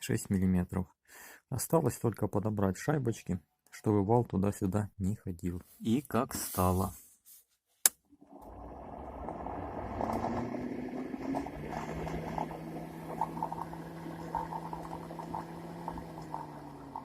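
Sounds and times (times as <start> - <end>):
fan motor humming: 8.5 - 17.0.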